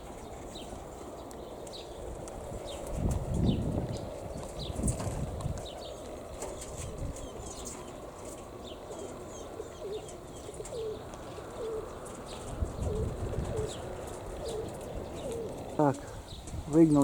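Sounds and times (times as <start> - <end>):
pigeons cooing: 0.0 - 17.0
strong wind on microphone: 1.7 - 7.8, 12.3 - 17.0
pigeons flapping wings: 2.2 - 8.6, 10.5 - 15.8.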